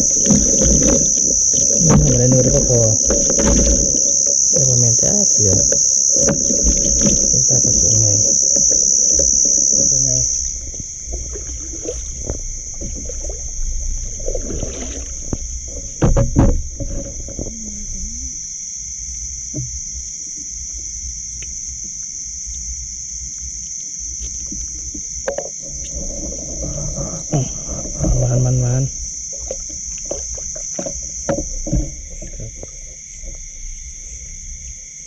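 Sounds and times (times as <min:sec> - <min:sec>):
low rumbling handling noise: 0:00.0 - 0:18.3, 0:24.4 - 0:35.0
insects chirping chorus: 0:00.0 - 0:35.0
loud knocks: 0:15.2 - 0:17.5.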